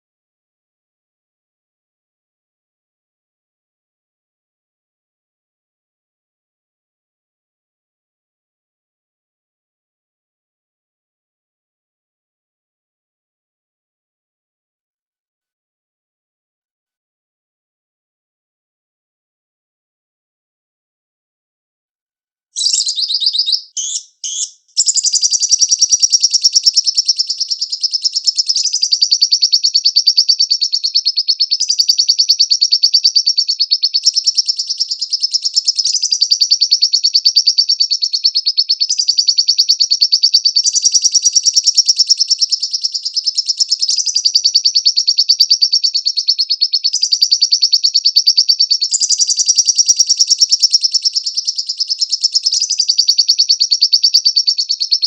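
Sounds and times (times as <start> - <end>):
lovebird chirping and trilling: 22.6 - 55.0.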